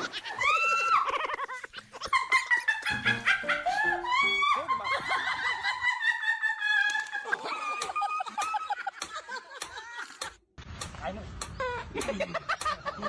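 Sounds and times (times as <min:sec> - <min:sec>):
high-pitched cry: 0:00.0 - 0:01.6.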